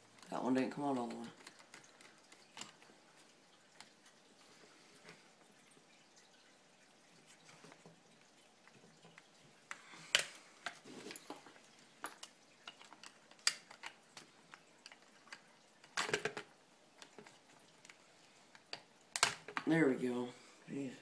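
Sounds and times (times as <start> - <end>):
parts clattering: 9.1 - 18.0
hand tools clicking on plastic parts: 12.0 - 19.7.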